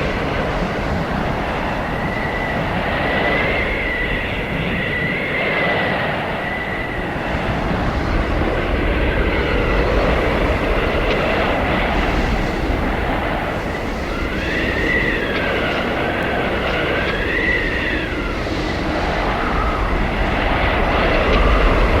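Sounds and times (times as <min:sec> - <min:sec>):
blizzard wind blowing: 0:00.0 - 0:22.0
high wavering wind whistle: 0:00.0 - 0:22.0.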